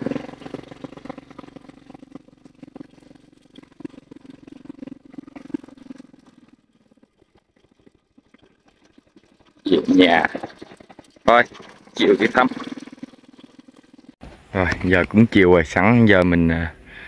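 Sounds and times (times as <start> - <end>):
small motorbike engine running: 0.0 - 7.6.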